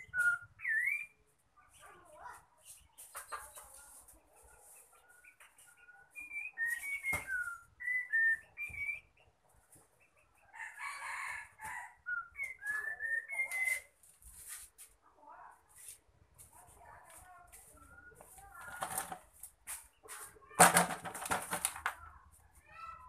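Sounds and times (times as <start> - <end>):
songbird whistling: 0.0 - 1.2, 6.2 - 9.2, 11.6 - 13.9
rooster crowing: 10.6 - 12.0.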